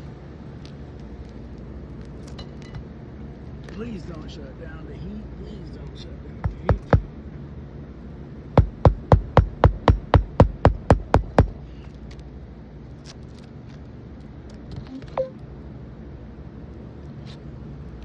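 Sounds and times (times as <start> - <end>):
hammer striking nail into shingle: 6.4 - 7.2, 8.6 - 11.6.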